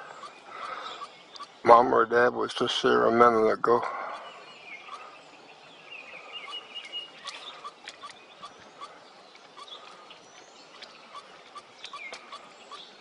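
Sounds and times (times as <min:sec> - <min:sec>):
sharp ticks: 0:00.0 - 0:01.8, 0:06.4 - 0:13.0
young woodpeckers calling: 0:00.0 - 0:13.0.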